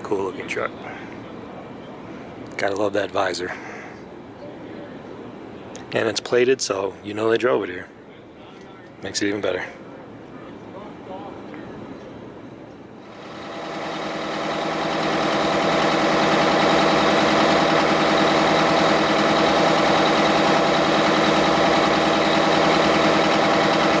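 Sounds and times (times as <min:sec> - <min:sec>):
truck engine running: 0:13.0 - 0:24.0.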